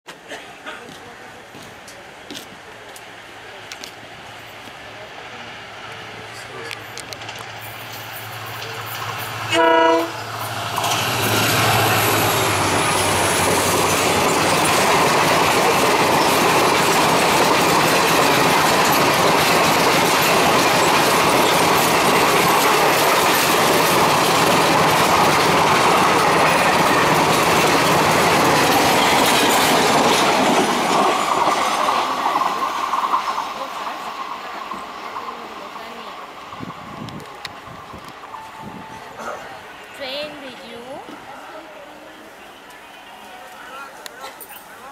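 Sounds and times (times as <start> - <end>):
train wheels rushing on rails: 0.1 - 44.9
locomotive horn blast: 9.5 - 10.3.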